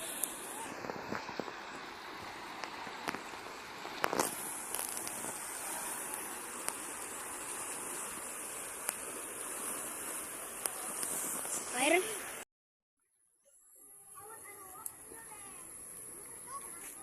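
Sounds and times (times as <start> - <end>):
floodwater rushing: 0.0 - 12.4.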